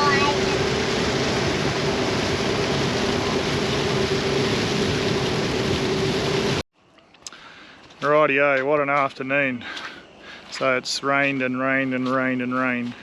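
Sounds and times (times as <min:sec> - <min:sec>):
waterfall roaring: 0:00.0 - 0:06.6.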